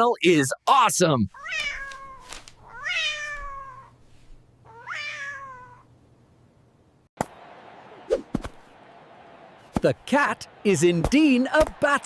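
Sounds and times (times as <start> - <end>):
cat meowing: 1.4 - 4.0, 4.6 - 5.9.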